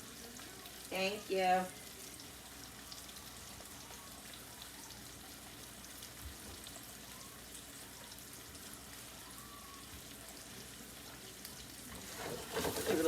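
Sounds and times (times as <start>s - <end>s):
fish sizzling in a pan: 0.0s - 13.0s
small crackles: 11.4s - 13.0s.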